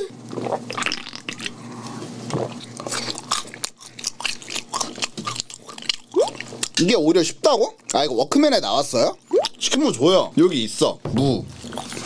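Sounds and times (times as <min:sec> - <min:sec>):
chewing crispy fried chicken: 0:00.0 - 0:08.1, 0:11.6 - 0:12.0.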